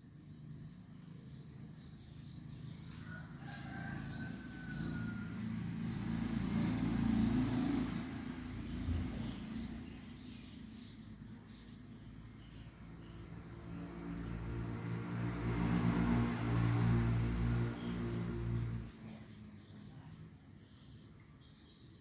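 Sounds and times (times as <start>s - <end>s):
motor vehicle passing by: 0.1s - 20.8s
faint rooster crowing: 2.5s - 6.4s.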